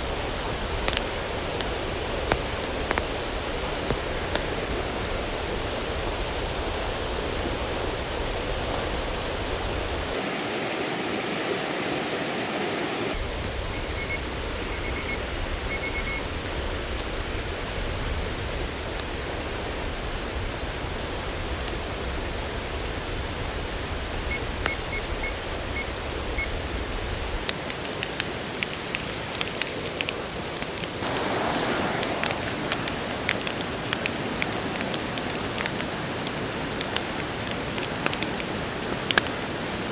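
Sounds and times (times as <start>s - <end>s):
rushing water: 0.0s - 13.2s, 27.4s - 39.9s
small ticks like drops: 27.5s - 39.9s.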